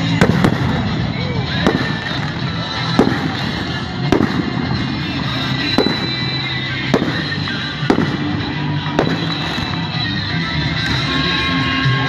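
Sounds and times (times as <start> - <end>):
continuous din: 0.0 - 12.0
firework shells bursting: 9.0 - 9.9.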